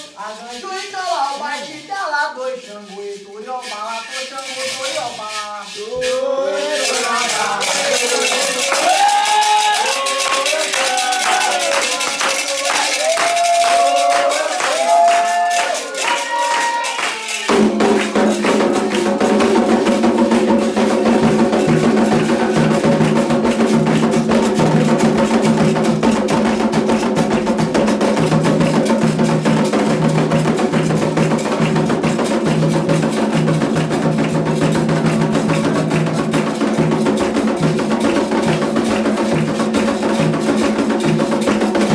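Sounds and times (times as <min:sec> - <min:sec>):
shaken rattle: 0:00.0 - 0:41.9
drums beating: 0:04.4 - 0:41.9
person singing: 0:05.8 - 0:19.8.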